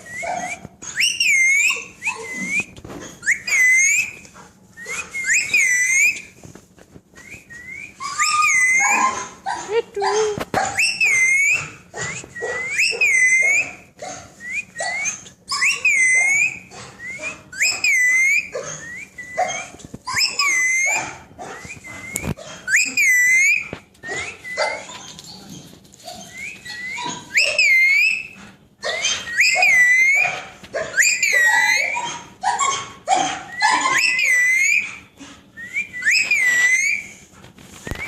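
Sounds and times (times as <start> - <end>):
parrot whistling call: 26.3 - 28.3, 29.0 - 30.3, 33.5 - 35.0, 35.6 - 37.2.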